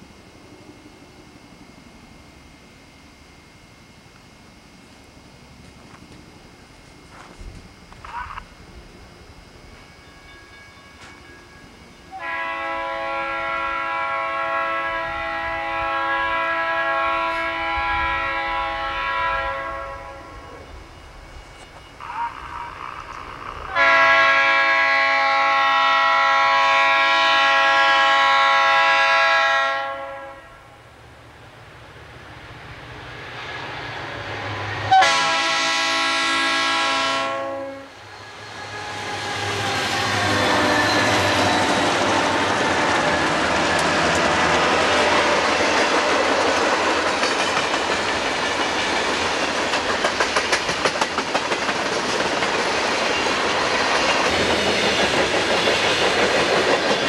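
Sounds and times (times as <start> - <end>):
locomotive air horn blasts: 12.1 - 20.6, 23.7 - 30.8, 34.9 - 38.0, 38.6 - 45.6
freight cars rumbling past: 37.9 - 50.0
locomotives passing: 37.9 - 57.0
wheels clacking over rail joints: 38.1 - 57.0.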